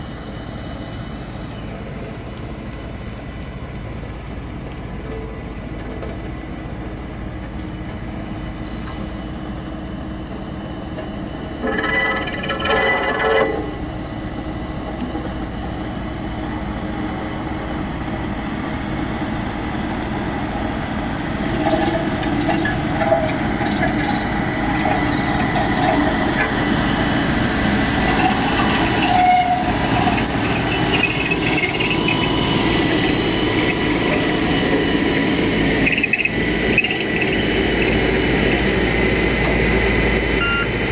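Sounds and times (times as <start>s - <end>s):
diesel engine running under load: 0.0s - 40.9s
high squeals: 11.5s - 14.7s, 15.9s - 39.3s.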